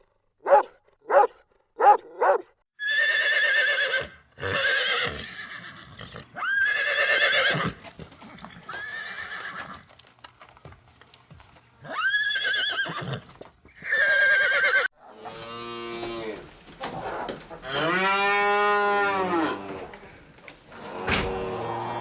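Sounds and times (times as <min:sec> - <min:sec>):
horse whinnying: 0:02.8 - 0:07.8, 0:08.6 - 0:09.8, 0:11.8 - 0:19.9
cow mooing: 0:17.6 - 0:19.9, 0:20.7 - 0:22.0.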